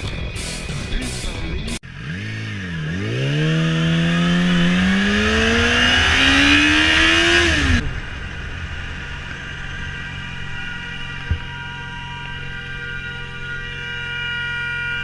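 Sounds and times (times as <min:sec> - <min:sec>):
motorcycle engine accelerating: 0:00.0 - 0:15.0
quiet steady engine hum: 0:07.4 - 0:15.0.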